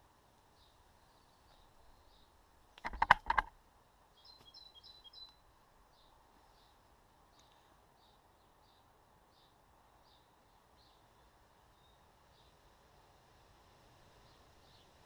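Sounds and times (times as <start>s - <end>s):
small birds chirping: 0.5s - 3.5s, 4.1s - 12.6s, 14.2s - 15.0s
sharp clicks and knocks: 2.8s - 3.5s.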